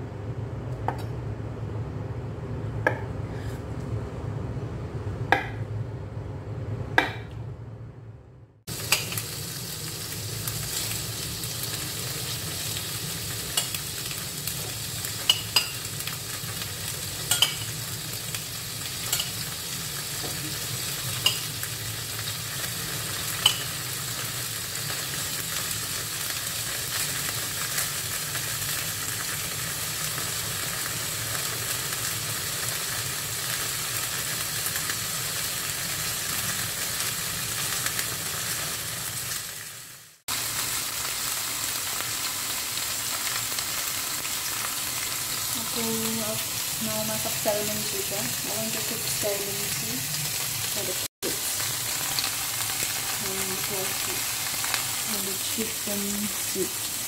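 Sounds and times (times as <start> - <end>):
tofu sizzling in oil: 8.7 - 57.0
metal tongs clicking on pan: 17.3 - 17.6, 23.4 - 23.7.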